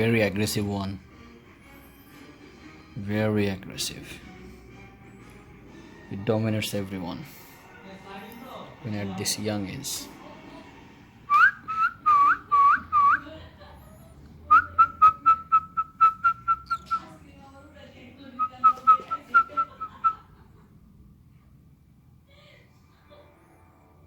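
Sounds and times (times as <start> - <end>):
person whistling notes: 11.3 - 13.2, 14.5 - 17.1.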